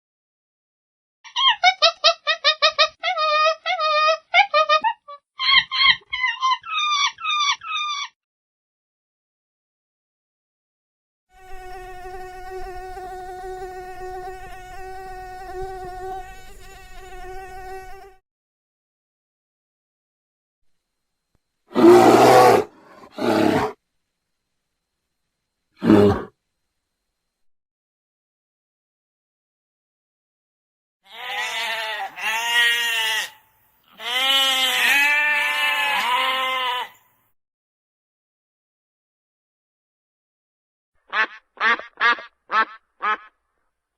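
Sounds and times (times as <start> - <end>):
insect buzzing: 11.3 - 18.2, 21.6 - 23.8, 25.7 - 26.4, 31.1 - 37.1
animal bleating: 31.1 - 37.1.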